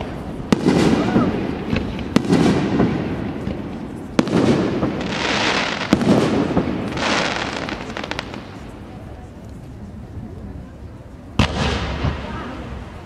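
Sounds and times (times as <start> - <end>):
firework hiss: 0.0 - 9.4.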